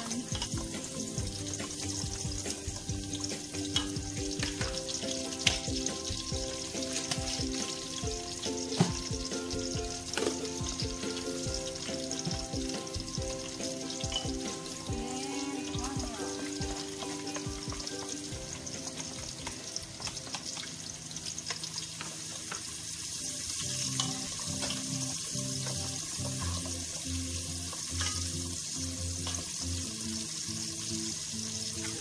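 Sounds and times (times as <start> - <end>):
background music: 0.0 - 32.0
oil sizzling in a pot: 0.0 - 32.0.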